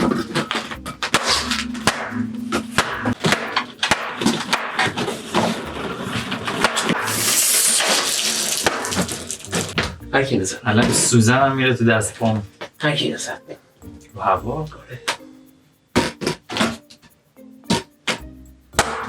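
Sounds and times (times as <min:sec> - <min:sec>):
balloons bursting: 0:00.0 - 0:10.1, 0:15.9 - 0:16.8
hissing: 0:00.0 - 0:18.8.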